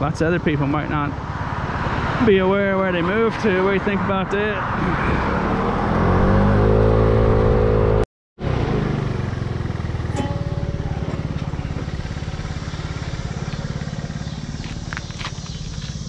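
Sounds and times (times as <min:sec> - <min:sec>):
vehicle engine idling: 0:08.4 - 0:16.0.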